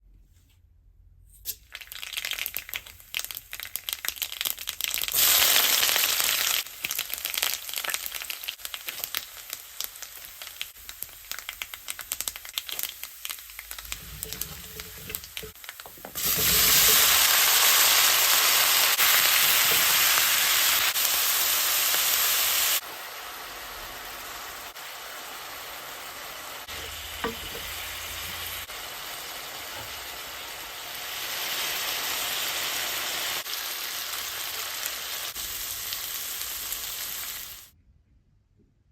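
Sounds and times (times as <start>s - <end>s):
food sizzling in hot oil: 1.5s - 37.7s.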